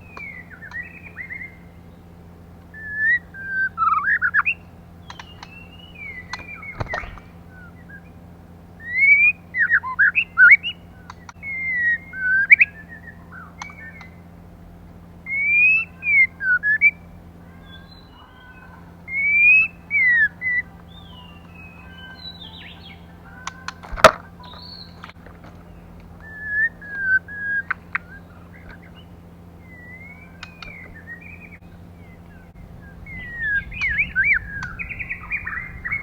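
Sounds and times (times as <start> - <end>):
bird whistled phrases: 0.0 - 2.0, 2.7 - 8.2, 8.8 - 14.3, 15.3 - 36.0
steady low hum: 0.0 - 36.0
sharp clicks: 5.0 - 5.6, 6.3 - 7.4, 11.1 - 11.4, 13.6 - 14.2, 30.4 - 31.0.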